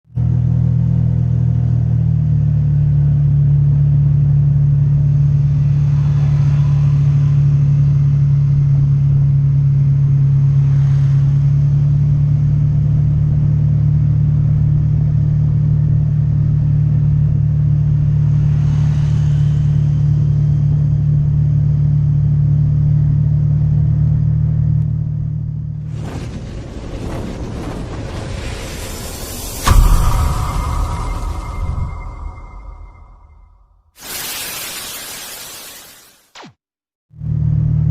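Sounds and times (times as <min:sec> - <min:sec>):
bright hissy sound: 0:34.0 - 0:36.2.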